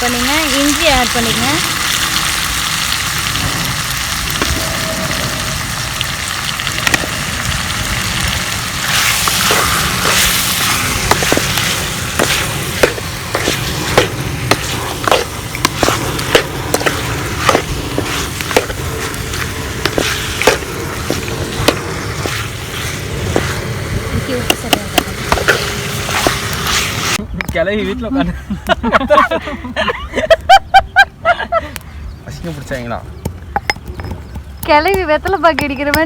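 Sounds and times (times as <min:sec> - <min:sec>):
chicken sizzling in frying oil: 0:00.0 - 0:27.2.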